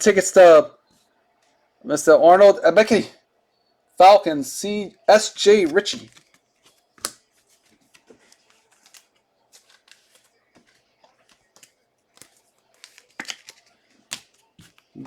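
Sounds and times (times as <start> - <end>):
trading cards being handled: 5.3 - 15.0.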